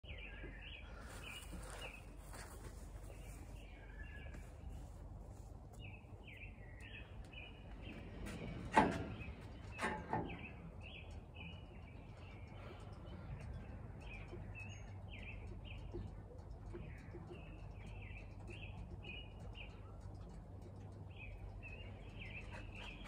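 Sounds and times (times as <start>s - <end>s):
small bird chirping: 9.2s - 23.0s.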